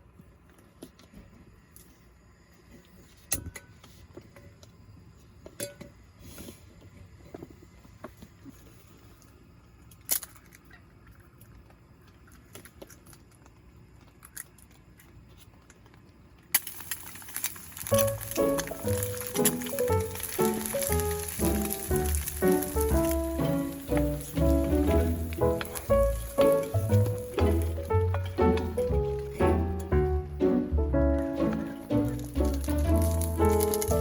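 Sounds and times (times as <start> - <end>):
small objects clicking and clinking: 9.8 - 29.9, 31.4 - 34.0
steady hiss: 16.5 - 34.0
background music: 17.9 - 34.0.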